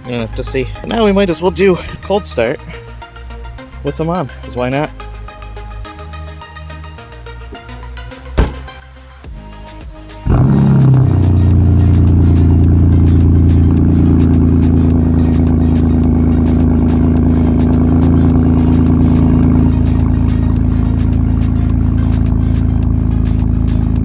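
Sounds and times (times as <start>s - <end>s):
car engine cold start and idle: 10.2s - 24.0s.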